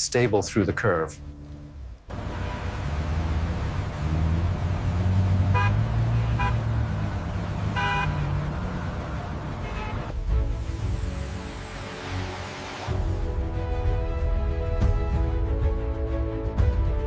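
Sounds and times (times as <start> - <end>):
car horn toots: 2.1 - 3.2, 5.4 - 8.9, 9.5 - 10.1.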